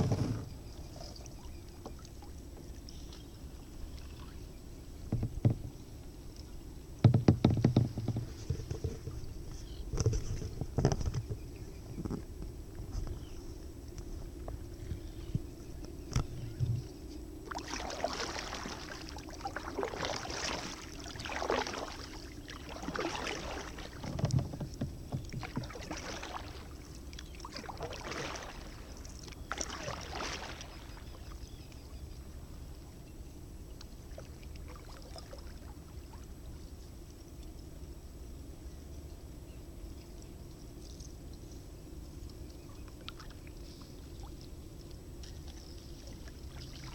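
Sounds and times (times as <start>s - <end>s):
low background rumble: 0.0s - 29.6s
paddle strokes splashing water: 17.4s - 31.8s, 33.9s - 36.8s, 42.2s - 46.9s.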